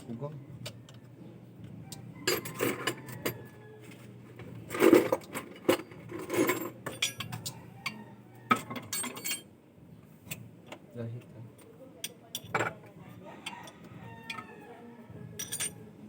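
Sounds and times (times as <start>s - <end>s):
metal hand tools clattering: 2.2s - 3.4s, 4.7s - 7.6s, 8.5s - 9.5s, 15.4s - 15.8s.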